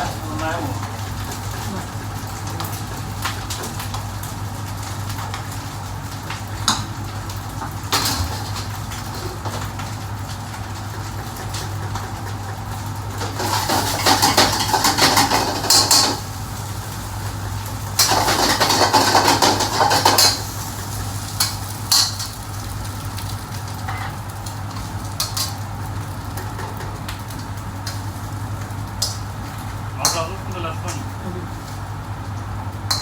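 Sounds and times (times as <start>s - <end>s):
pots and pans clattering: 10.8s - 16.3s, 17.9s - 20.6s.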